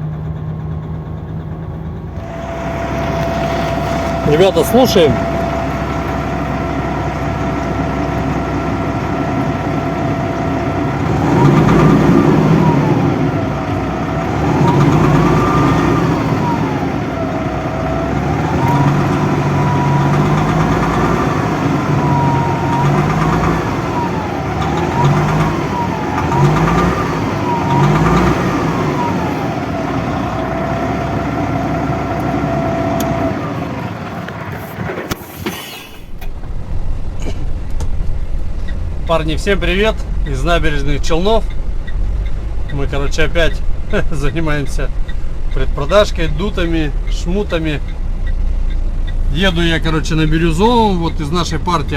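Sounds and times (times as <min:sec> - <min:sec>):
engine knock: 0:00.0 - 0:35.6
diesel truck engine revving: 0:00.0 - 0:51.9.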